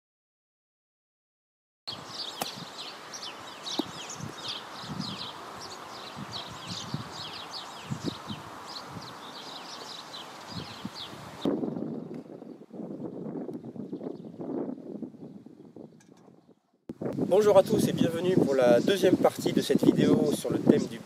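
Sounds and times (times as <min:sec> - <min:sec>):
small birds chirping: 0:01.9 - 0:16.7, 0:17.4 - 0:21.0
low rush of wind: 0:01.9 - 0:21.0
wind rustling leaves: 0:01.9 - 0:21.0.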